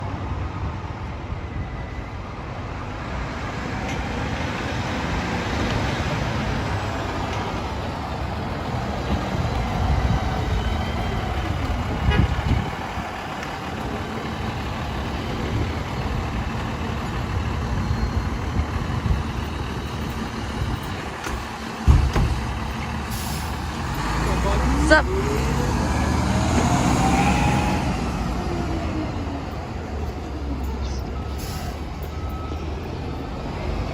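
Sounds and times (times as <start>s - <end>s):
city street traffic: 0.0s - 33.9s
fire engine engine: 0.0s - 33.9s.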